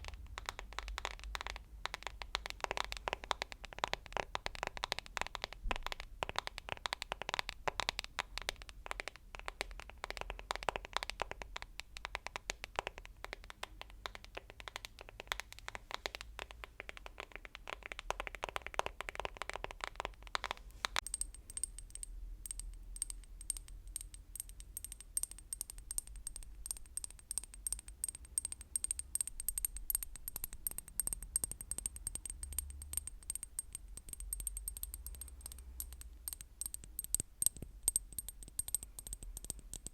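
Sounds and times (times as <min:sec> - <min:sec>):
rapid tapping and scratching: 0:00.0 - 0:39.9
tapping with ringing tone: 0:21.0 - 0:39.9.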